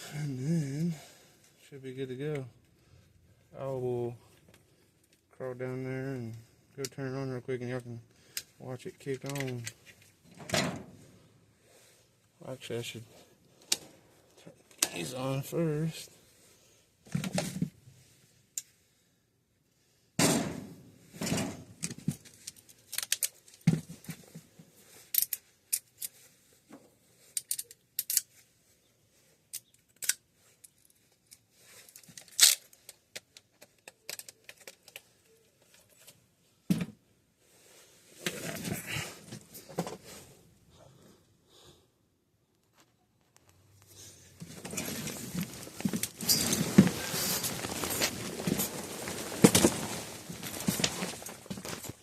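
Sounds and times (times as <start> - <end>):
rustling: 42.6 - 52.0.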